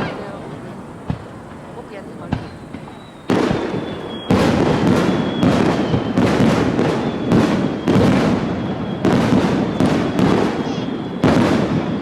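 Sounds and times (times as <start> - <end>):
fireworks booming and crackling: 0.0 - 12.0.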